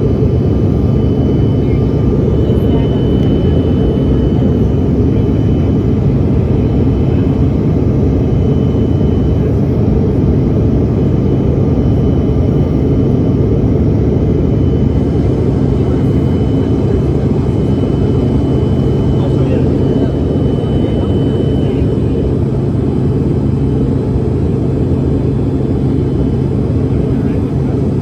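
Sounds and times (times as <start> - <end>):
airliner engine drone in cabin: 0.0 - 28.0
faint high whine: 0.0 - 28.0.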